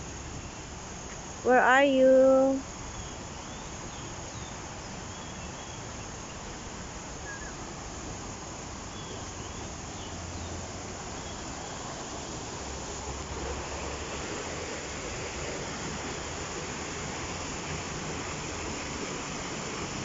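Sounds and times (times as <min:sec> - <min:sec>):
outdoor background hiss: 0:00.0 - 0:20.0
faint bird chirps: 0:07.2 - 0:07.6.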